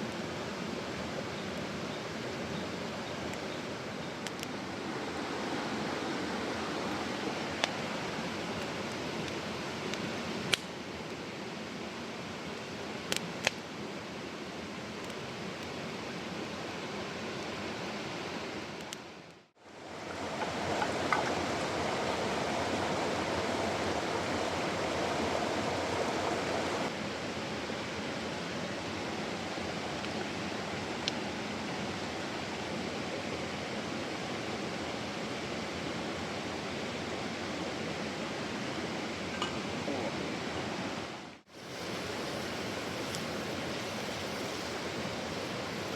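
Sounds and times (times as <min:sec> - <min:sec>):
mountain stream rushing: 0:04.5 - 0:10.4, 0:19.6 - 0:45.9.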